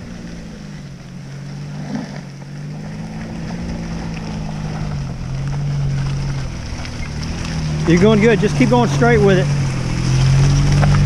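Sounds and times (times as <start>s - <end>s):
road noise: 0.0s - 11.0s
suv engine low drone: 0.0s - 11.0s.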